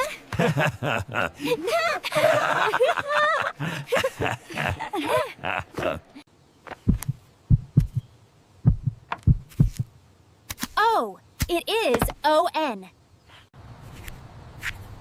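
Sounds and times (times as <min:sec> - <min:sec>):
low dull thumps: 0:06.8 - 0:09.9.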